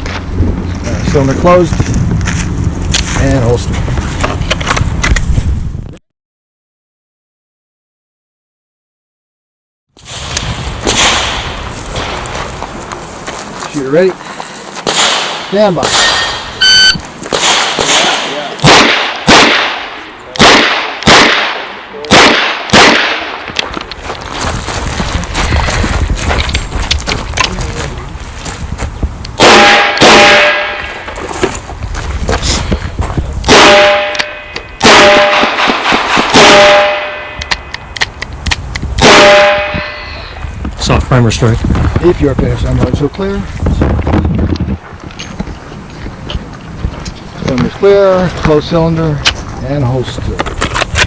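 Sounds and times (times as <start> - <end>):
shot timer beep: 16.6 - 17.0
metallic ringing: 33.7 - 35.5, 36.4 - 38.0.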